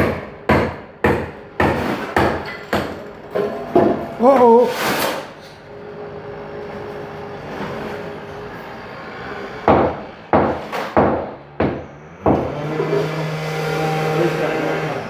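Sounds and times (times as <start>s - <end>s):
sharp knocks: 9.7s - 12.7s.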